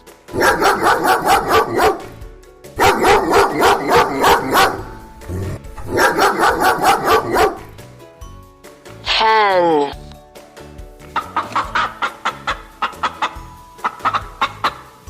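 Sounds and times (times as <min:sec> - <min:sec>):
dog barking rapidly: 0:00.3 - 0:02.2, 0:02.8 - 0:05.0, 0:05.8 - 0:07.8.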